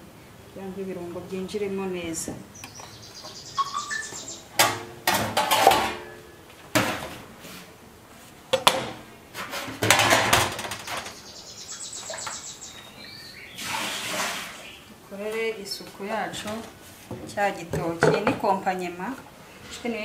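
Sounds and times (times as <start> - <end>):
dishes and cutlery clattering: 4.6 - 6.2.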